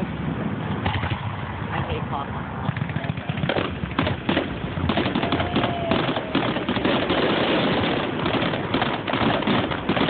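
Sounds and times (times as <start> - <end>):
fireworks crackling: 2.7 - 10.0.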